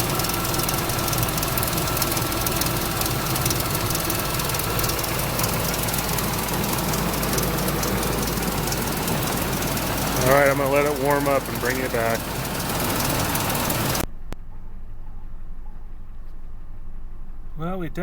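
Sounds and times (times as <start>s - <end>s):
fast engine ticking: 0.0s - 14.0s
car engine idling: 0.0s - 14.1s.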